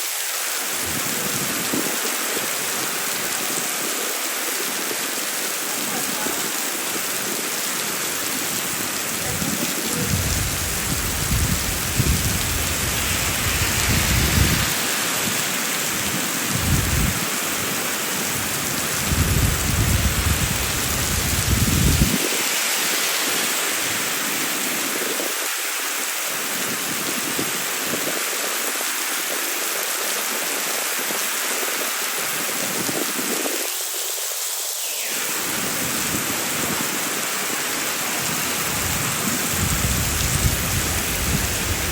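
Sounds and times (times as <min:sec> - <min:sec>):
heavy rain on pavement: 0:00.0 - 0:41.9.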